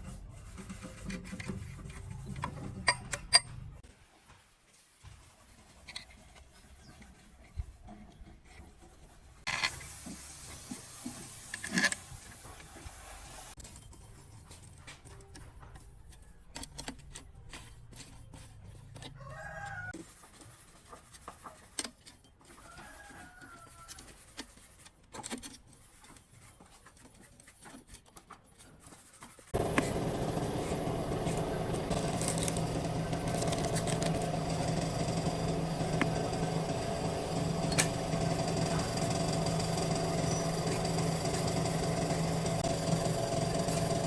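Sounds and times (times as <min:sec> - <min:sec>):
workshop machine humming: 0:29.5 - 0:44.0.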